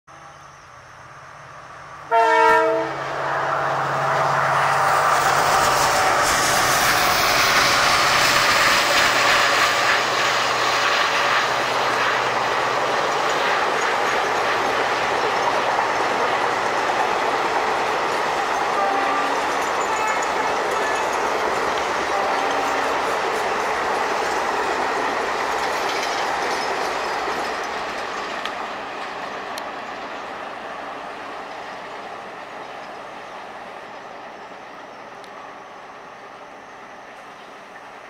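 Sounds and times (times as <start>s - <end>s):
train coaches rumbling and clattering: 0.1s - 38.0s
locomotive horn blast: 2.1s - 4.3s, 18.6s - 21.2s, 21.9s - 23.2s
locomotive engine drone: 2.8s - 38.0s.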